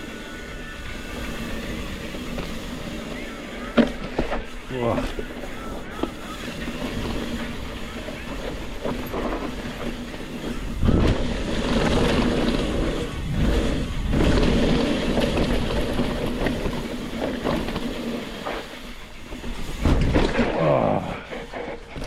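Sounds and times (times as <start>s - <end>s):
tyres rolling over dirt and rock: 0.0s - 22.0s
wind rushing over microphone: 6.5s - 18.7s.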